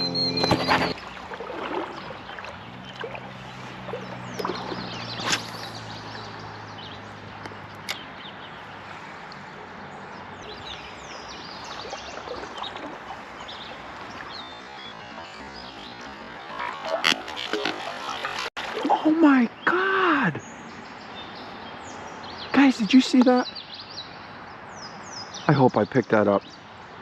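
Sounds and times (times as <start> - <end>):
creek water gurgling: 0.0 - 20.2
bird chirps: 0.0 - 26.6.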